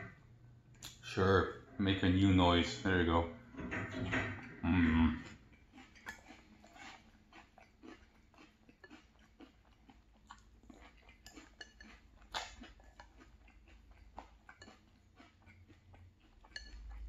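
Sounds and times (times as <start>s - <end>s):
chewing crunchy cereal: 4.8s - 17.0s.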